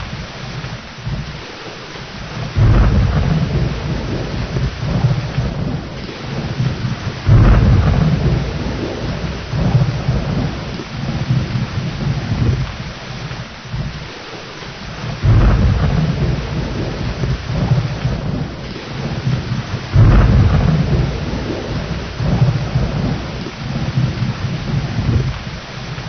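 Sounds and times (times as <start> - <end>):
heavy rain: 0.0 - 26.0
rolling thunder: 0.0 - 26.0
loud thunder cracks: 2.4 - 12.6, 15.2 - 25.3.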